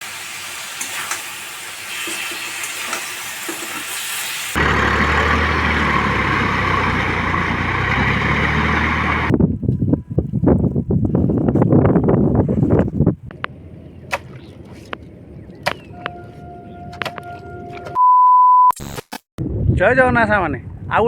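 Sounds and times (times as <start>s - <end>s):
tractor diesel engine running: 4.6s - 9.3s, 13.2s - 18.0s.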